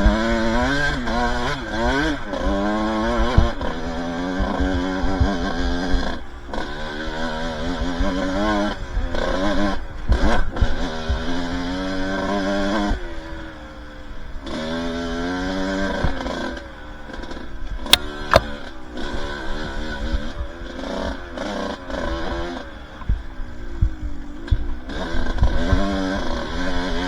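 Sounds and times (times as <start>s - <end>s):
sharp click: 17.9s - 18.5s.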